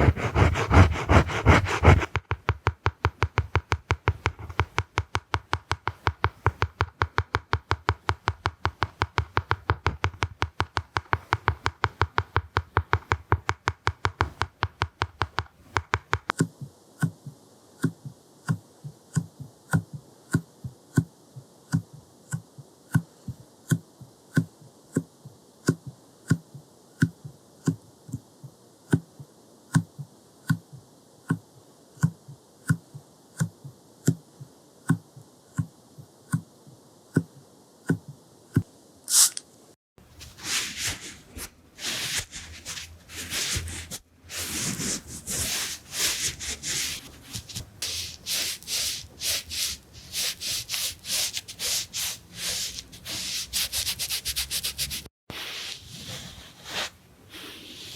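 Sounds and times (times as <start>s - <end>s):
rubbing and dabbing strokes: 0.0s - 16.3s, 40.0s - 57.9s.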